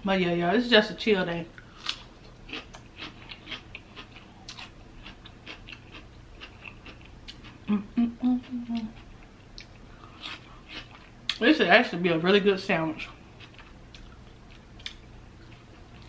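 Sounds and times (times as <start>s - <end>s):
person chewing: 1.6s - 11.4s, 13.0s - 16.0s
person humming: 7.7s - 9.0s.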